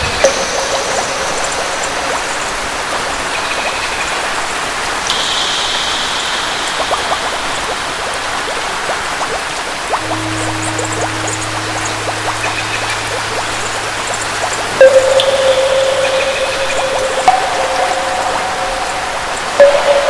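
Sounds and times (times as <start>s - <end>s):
rain pattering: 0.0s - 20.0s
high held tone: 9.9s - 20.0s
low held instrument note: 9.9s - 20.0s.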